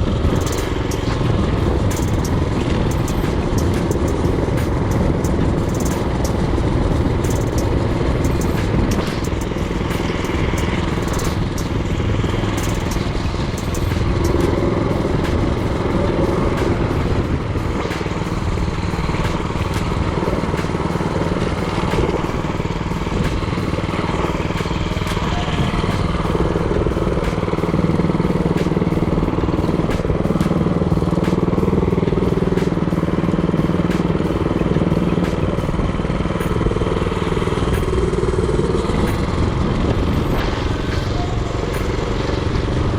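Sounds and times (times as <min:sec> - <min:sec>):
sharp clicks: 0:00.0 - 0:31.8
mini-bike engine running: 0:00.0 - 0:42.9.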